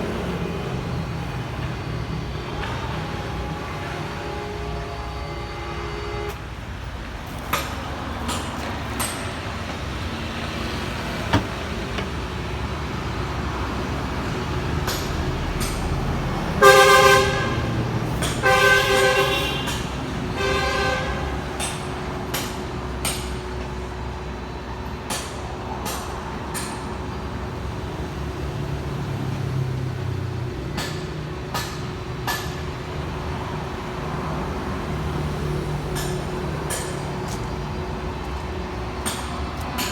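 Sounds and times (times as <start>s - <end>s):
horn honking: 2.3s - 6.9s, 16.5s - 21.6s
drill press humming: 8.6s - 13.6s.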